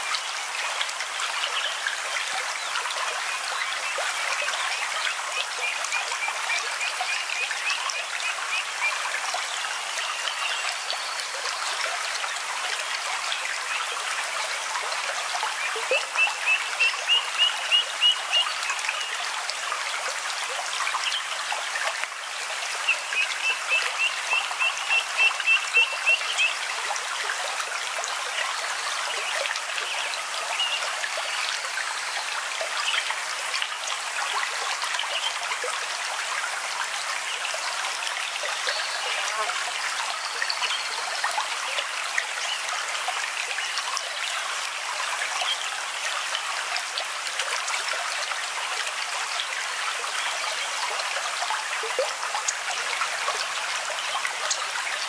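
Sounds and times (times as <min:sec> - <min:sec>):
stream water running: 0:00.0 - 0:55.0.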